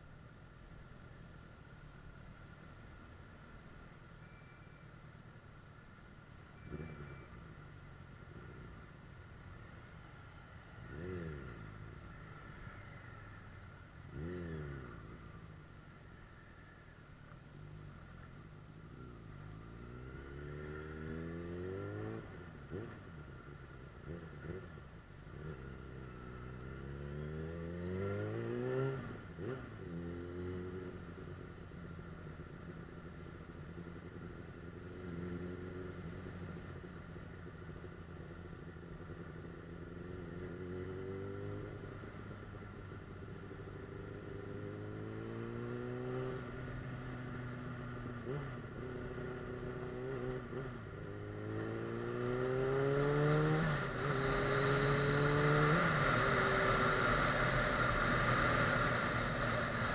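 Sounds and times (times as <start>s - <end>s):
motorcycle engine revving: 19.0s - 59.9s.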